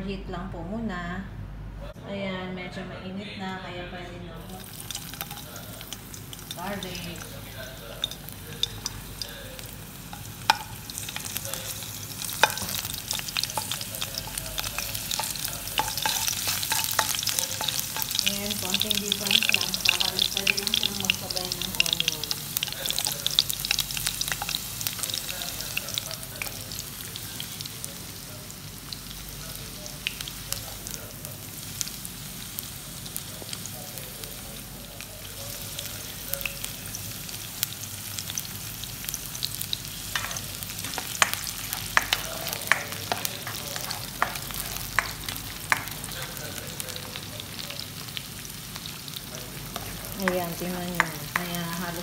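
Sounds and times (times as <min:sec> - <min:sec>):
garlic sizzling in hot oil: 0:04.4 - 0:52.0
spoon clicking and scraping pan: 0:04.6 - 0:07.3, 0:10.1 - 0:25.2, 0:40.1 - 0:46.2.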